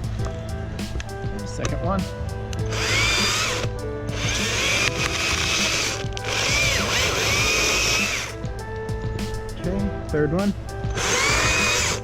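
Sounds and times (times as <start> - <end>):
chainsaw cutting wood: 2.7 - 8.4, 11.0 - 12.0.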